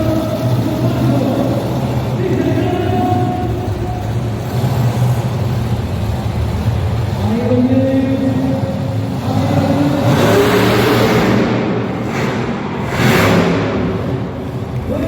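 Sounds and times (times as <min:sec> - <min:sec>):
loud broad rush of noise: 0:08.7 - 0:15.0
engine revving hard: 0:09.1 - 0:14.9.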